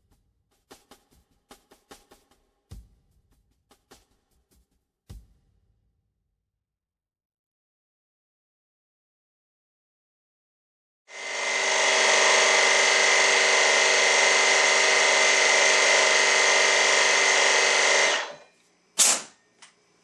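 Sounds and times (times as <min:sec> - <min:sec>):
impact wrench hammering: 0:11.2 - 0:18.4.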